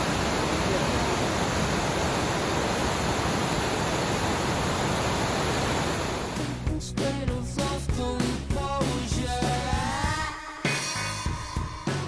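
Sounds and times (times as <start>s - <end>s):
water rushing from dam spillway: 0.0s - 6.6s.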